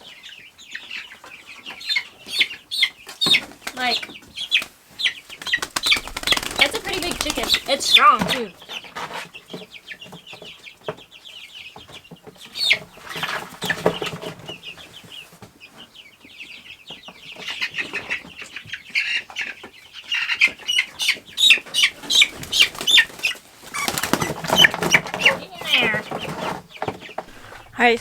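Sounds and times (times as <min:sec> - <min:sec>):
chicks peeping: 0:00.0 - 0:28.0
birds scrabbling: 0:01.0 - 0:16.1, 0:16.9 - 0:28.0
wings flapping: 0:03.3 - 0:08.5, 0:21.8 - 0:28.0.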